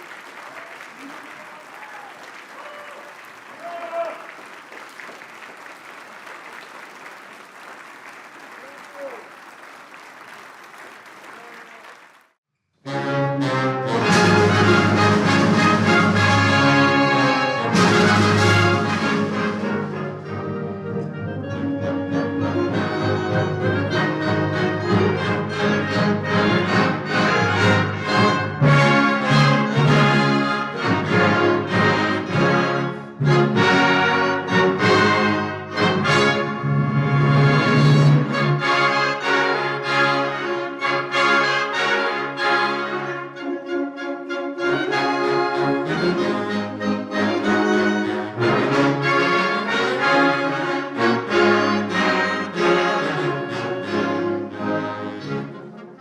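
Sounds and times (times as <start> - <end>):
wind band playing: 12.8 - 56.0.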